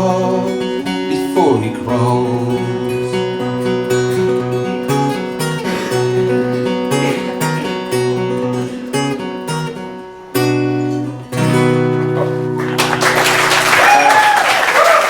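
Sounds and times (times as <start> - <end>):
acoustic guitar strumming: 0.0 - 13.7
applause: 12.5 - 15.0.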